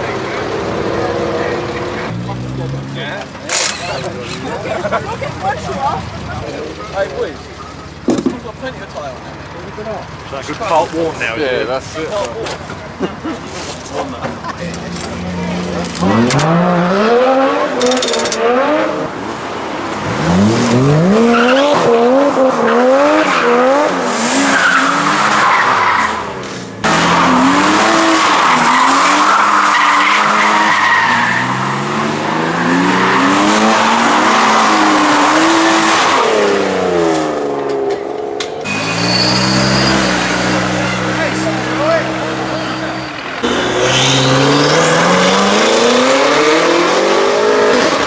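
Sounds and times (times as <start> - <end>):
car engine revving: 0.0 - 48.0
tyre screech: 3.4 - 4.6, 20.6 - 46.7.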